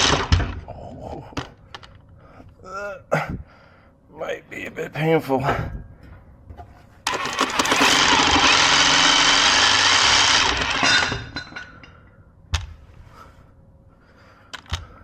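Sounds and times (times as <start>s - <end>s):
power tool rattling: 0.0s - 0.4s, 7.1s - 11.7s.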